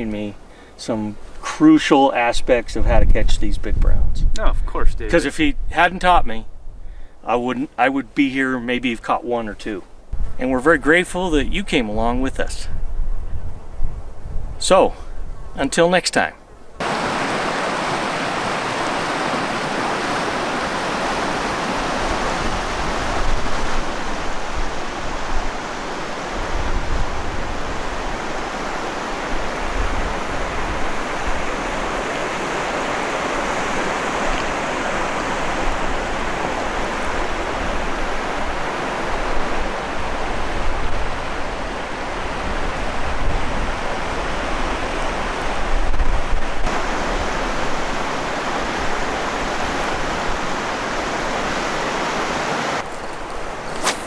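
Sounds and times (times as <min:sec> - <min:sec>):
river water rushing: 0:16.8 - 0:43.0, 0:46.7 - 0:54.0.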